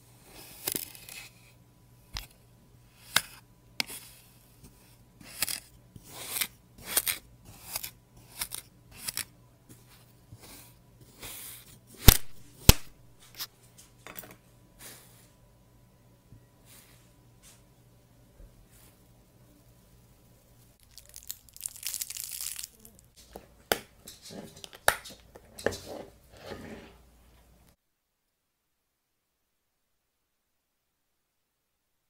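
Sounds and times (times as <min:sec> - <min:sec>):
knife slicing sand: 0:05.2 - 0:09.3.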